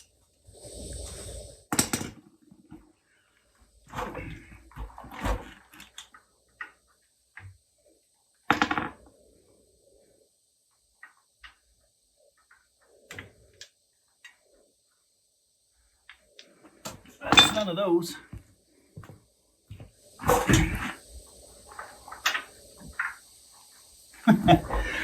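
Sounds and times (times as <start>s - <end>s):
hand tools and metal parts clanking: 16.8s - 18.2s.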